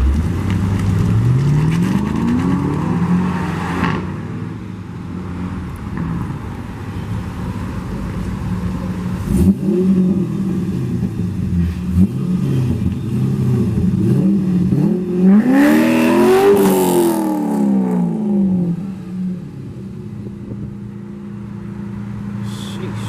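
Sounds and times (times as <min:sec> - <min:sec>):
car engine revving: 0:09.0 - 0:23.0.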